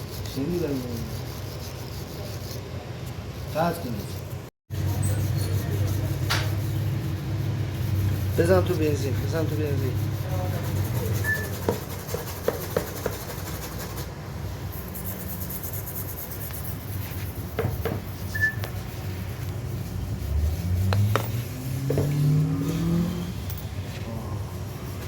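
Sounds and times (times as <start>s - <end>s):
car engine idling and revving: 19.5s - 24.5s.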